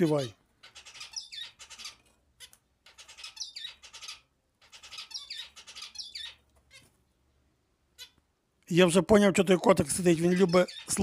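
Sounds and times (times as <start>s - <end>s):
bird chattering and whistling: 0.0s - 6.8s, 10.2s - 11.0s.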